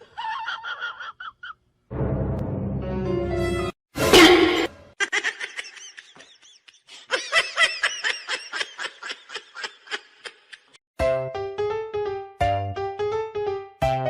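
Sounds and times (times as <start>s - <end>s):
person giggling: 0.0s - 1.6s, 5.0s - 10.8s.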